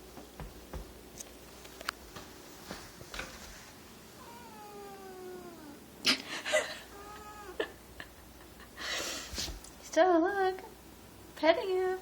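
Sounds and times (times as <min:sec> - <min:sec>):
cat yowling: 0:04.2 - 0:05.9, 0:06.9 - 0:07.7.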